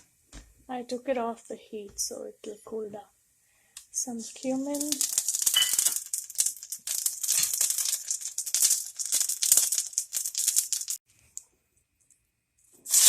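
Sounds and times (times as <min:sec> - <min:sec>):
seeds crackling in hot oil: 0:03.8 - 0:11.5, 0:12.8 - 0:13.0.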